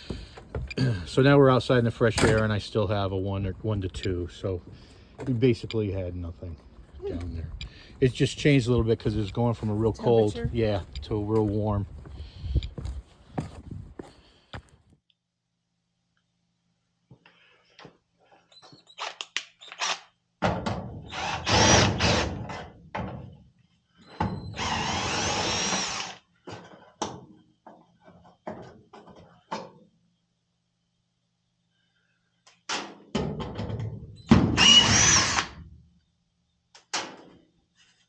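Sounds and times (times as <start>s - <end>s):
tools knocking and clattering: 0.0s - 0.9s
power drill running: 21.1s - 22.3s, 24.6s - 26.2s, 34.6s - 35.6s.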